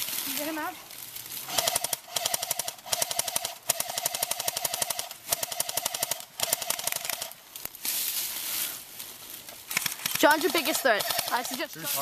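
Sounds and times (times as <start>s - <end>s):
airsoft gun firing rapid clicks: 1.5s - 7.4s, 9.7s - 11.6s.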